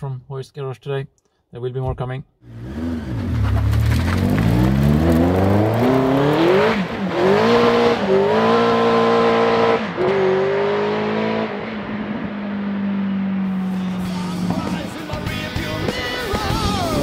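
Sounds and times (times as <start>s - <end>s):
engine accelerating through gears: 2.4s - 14.9s.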